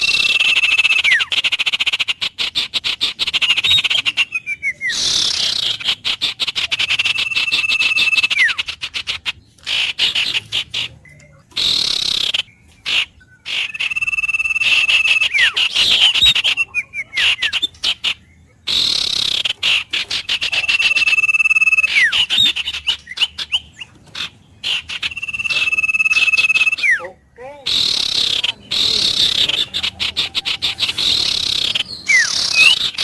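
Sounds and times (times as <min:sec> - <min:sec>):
songbird singing: 0:00.0 - 0:33.0.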